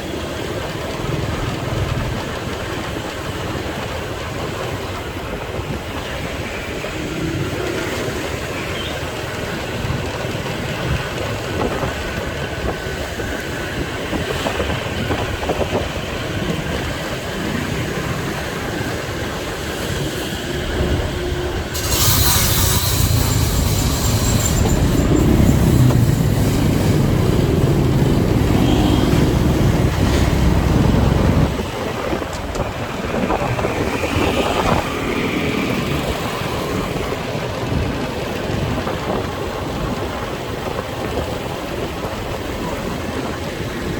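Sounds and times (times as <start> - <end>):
motorcycle riding: 0.0 - 43.9
deep rumble: 20.6 - 34.8.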